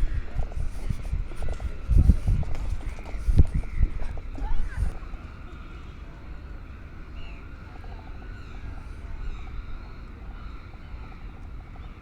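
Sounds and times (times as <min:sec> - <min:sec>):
steady low rumble: 0:00.0 - 0:05.2
faint distant voices: 0:00.0 - 0:12.0.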